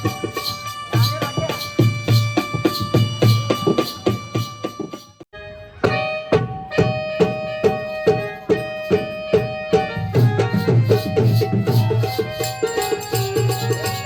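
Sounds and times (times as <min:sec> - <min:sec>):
hand drum beating: 0:00.0 - 0:05.2, 0:05.9 - 0:14.0
held keyboard notes: 0:00.0 - 0:14.0.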